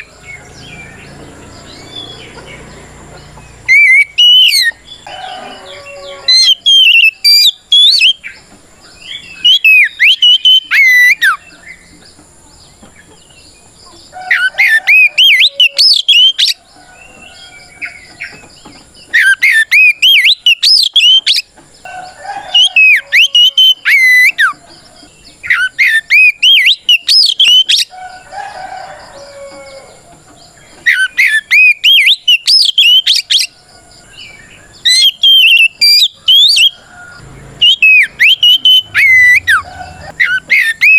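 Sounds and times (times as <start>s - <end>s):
bird singing whistled phrases: 3.7s - 4.8s, 5.5s - 8.2s, 9.3s - 11.4s, 14.3s - 16.6s, 19.1s - 21.5s, 22.5s - 24.6s, 25.5s - 27.9s, 30.8s - 33.5s, 34.8s - 36.8s, 37.6s - 40.9s.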